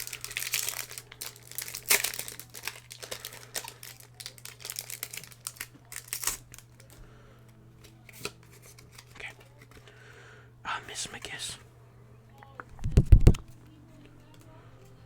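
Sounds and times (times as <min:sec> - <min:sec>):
foil wrapper crinkling: 0:00.0 - 0:07.0, 0:07.8 - 0:09.8.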